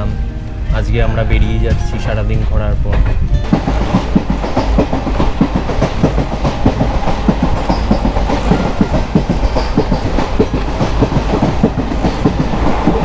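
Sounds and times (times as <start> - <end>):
train rumbling: 0.0 - 13.0
wheels clattering over rail joints: 0.0 - 13.0.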